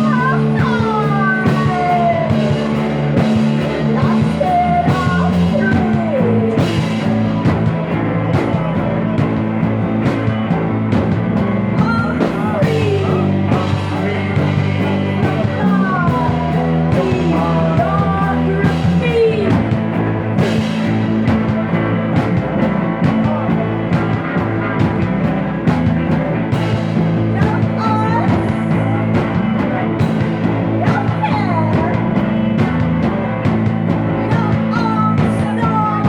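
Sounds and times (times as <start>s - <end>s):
psychedelic rock band: 0.0s - 36.0s
sliding lead guitar line: 0.0s - 36.0s.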